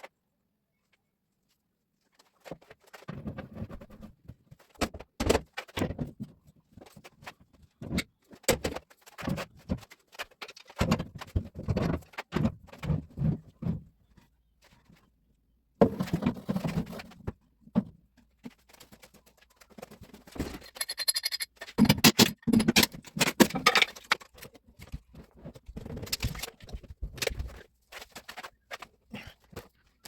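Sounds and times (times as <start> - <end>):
tools knocking and clattering: 20.4 - 25.1.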